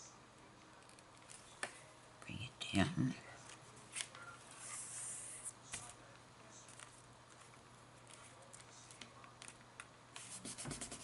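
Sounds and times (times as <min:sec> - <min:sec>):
paper rustling: 0:06.6 - 0:09.6
light rubbing on paper: 0:10.2 - 0:11.0.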